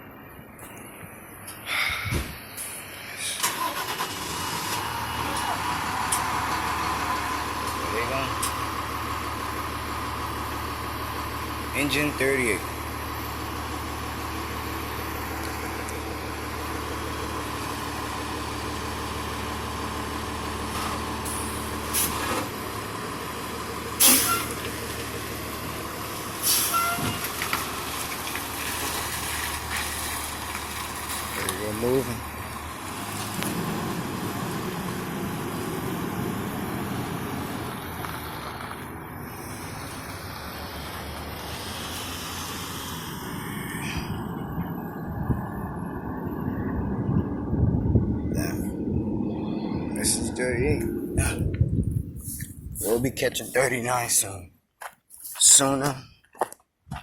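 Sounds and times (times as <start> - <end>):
vehicle engine starting and running: 1.5 - 54.4
air brakes hissing: 24.0 - 24.6, 26.4 - 27.2.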